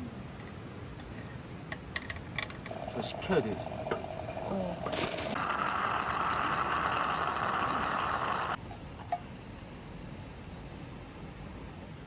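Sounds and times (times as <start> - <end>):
steady hiss: 2.6 - 11.9
crickets chirping: 5.3 - 11.9.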